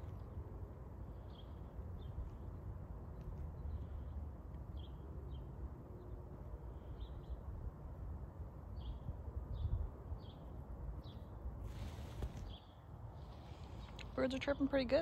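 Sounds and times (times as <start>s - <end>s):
birds chirping: 8.7s - 15.0s.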